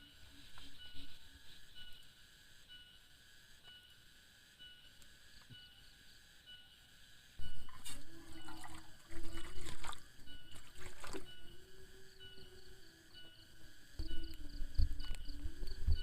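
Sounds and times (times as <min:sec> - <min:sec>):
insect chirping: 0:00.0 - 0:16.0
water splashing and trickling: 0:07.4 - 0:11.6.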